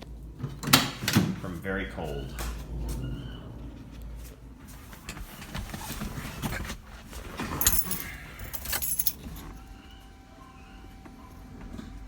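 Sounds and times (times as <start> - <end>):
car keys jangling: 7.4 - 9.6.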